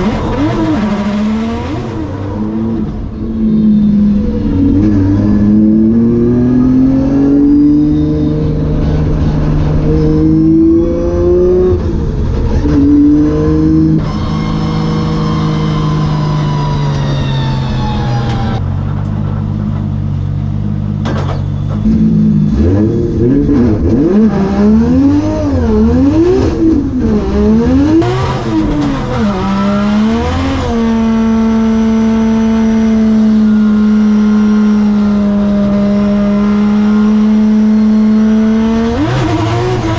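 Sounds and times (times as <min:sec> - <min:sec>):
car engine revving hard: 0:00.0 - 0:12.0, 0:21.9 - 0:39.9.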